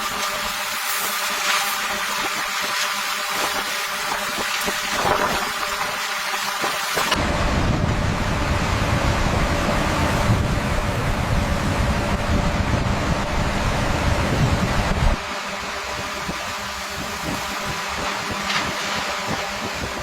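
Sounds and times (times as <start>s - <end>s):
engine-like running hum: 0.0s - 20.0s
machinery rumbling: 7.1s - 20.0s.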